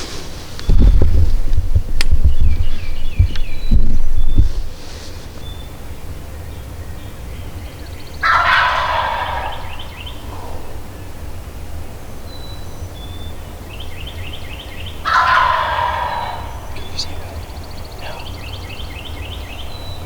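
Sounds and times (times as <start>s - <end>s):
turkey gobbling: 8.2s - 10.9s, 14.8s - 19.2s.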